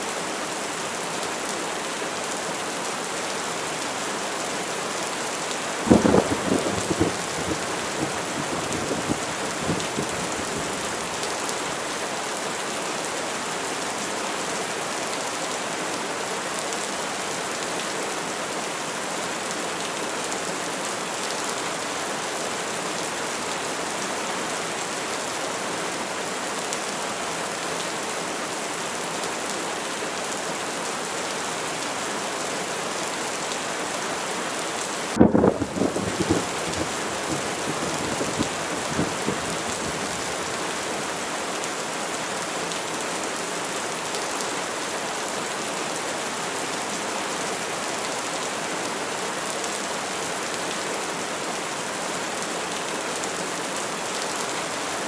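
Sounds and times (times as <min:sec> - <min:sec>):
heavy rain hissing: 0:05.6 - 0:12.2, 0:34.9 - 0:41.7
thunder crack and rumble: 0:05.9 - 0:11.2, 0:35.2 - 0:40.3.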